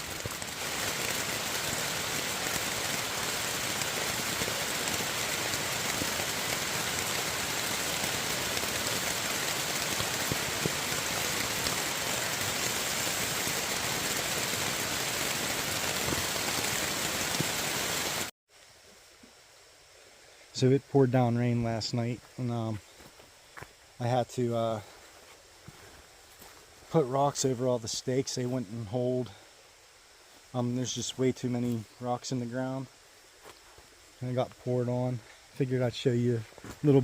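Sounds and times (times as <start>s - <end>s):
heavy rain hissing: 0.0s - 18.3s, 19.6s - 37.0s
raindrop taps: 0.1s - 13.6s, 15.8s - 17.6s.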